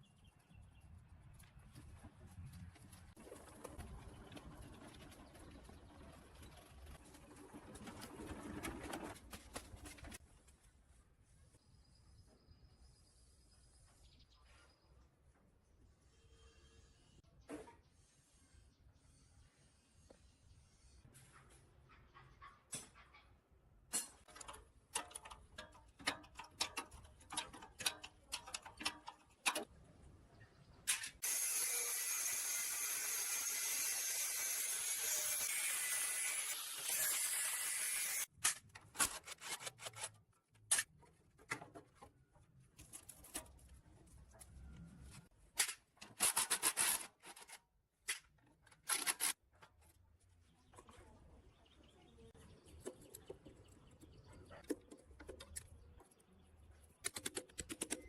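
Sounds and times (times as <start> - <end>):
hand tools clicking on metal: 24.0 - 29.7.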